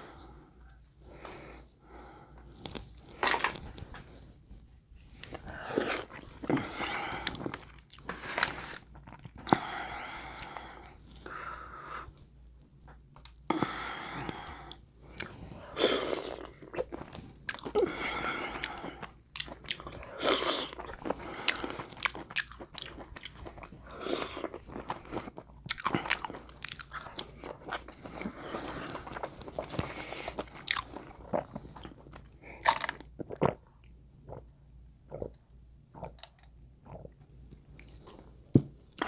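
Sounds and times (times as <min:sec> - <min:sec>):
wet chewing and crunching: 0:15.1 - 0:17.8, 0:18.4 - 0:34.5.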